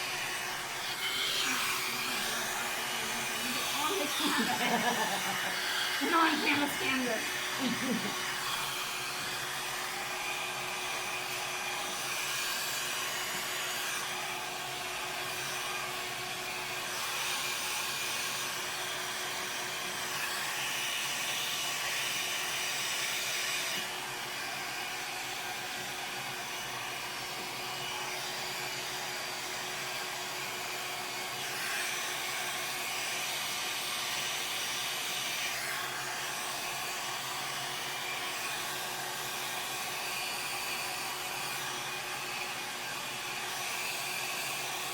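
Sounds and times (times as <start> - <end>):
hair dryer blowing: 0.0 - 44.9.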